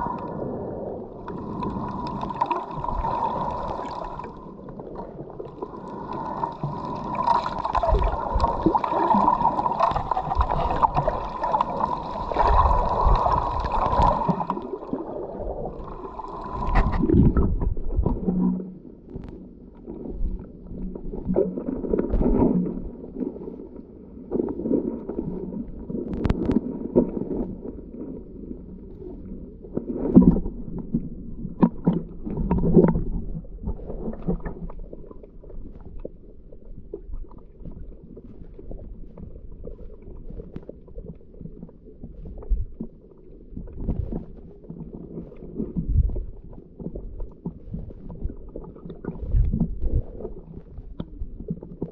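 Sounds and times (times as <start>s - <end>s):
exhaled bubbles gurgling: 0.0s - 51.9s
diver breathing underwater: 5.6s - 17.4s.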